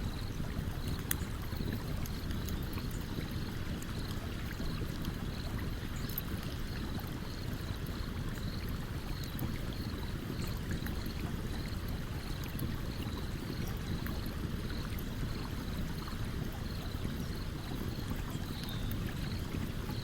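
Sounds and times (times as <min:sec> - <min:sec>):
stream running: 0:00.0 - 0:20.0
campfire crackling and popping: 0:00.1 - 0:19.8.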